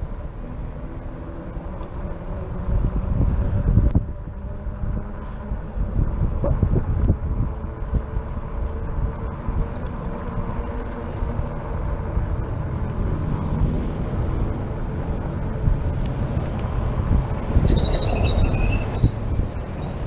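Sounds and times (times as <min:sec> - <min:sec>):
tyres rumbling on pavement: 0:00.0 - 0:20.0
wind on microphone: 0:00.0 - 0:20.0.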